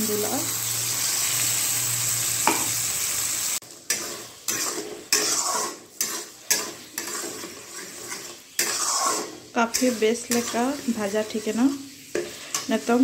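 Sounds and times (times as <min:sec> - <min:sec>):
paste sizzling in a pan: 0:00.0 - 0:13.0
spatula scraping a pan: 0:03.6 - 0:13.0.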